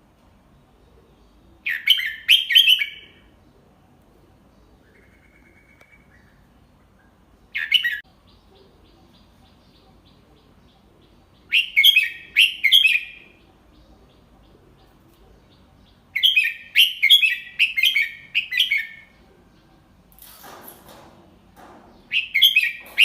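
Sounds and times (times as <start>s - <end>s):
bulbul singing: 4.8s - 20.0s, 21.9s - 23.0s.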